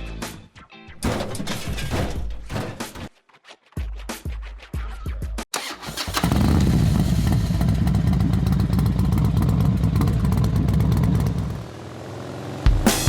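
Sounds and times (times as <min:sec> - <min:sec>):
motorcycle engine running: 0:06.1 - 0:13.0.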